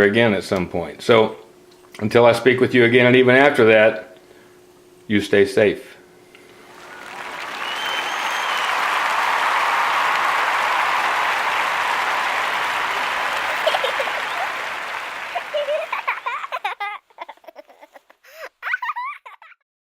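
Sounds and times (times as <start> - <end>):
applause: 6.6 - 16.7.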